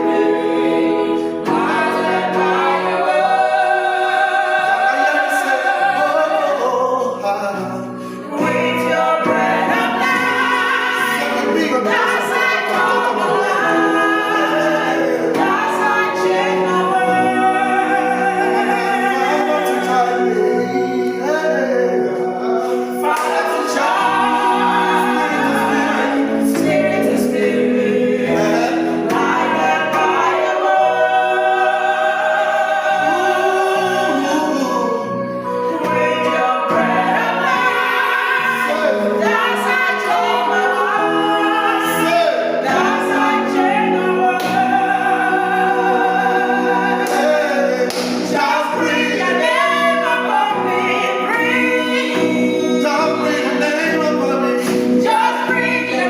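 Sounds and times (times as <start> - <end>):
group singing a hymn: 0.0 - 56.0.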